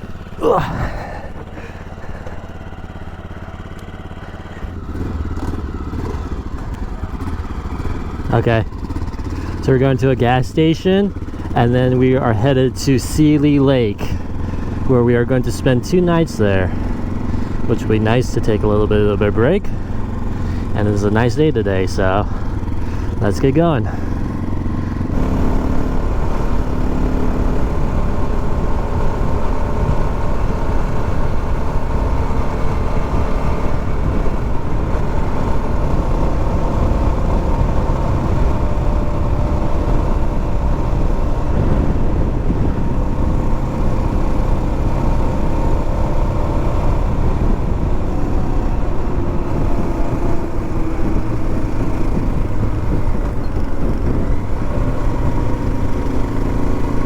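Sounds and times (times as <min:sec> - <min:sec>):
motorcycle engine running: 0:00.0 - 0:57.0
wind noise on microphone: 0:27.8 - 0:56.4.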